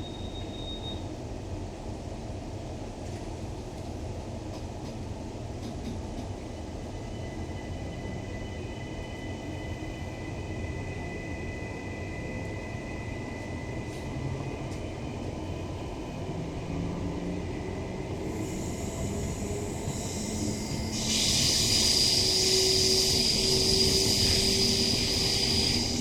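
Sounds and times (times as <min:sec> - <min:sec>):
train rolling rumble: 0:00.0 - 0:26.0
high hiss: 0:18.4 - 0:26.0.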